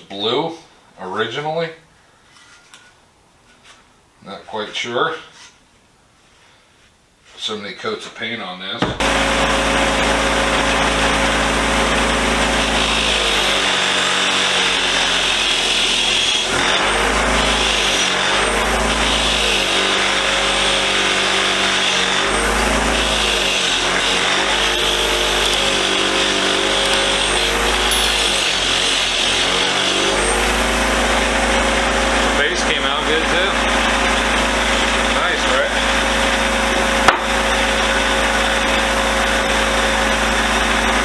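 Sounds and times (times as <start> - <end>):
wire wheel motor hum: 8.8 - 41.0
wire wheel scratching metal: 9.0 - 33.5.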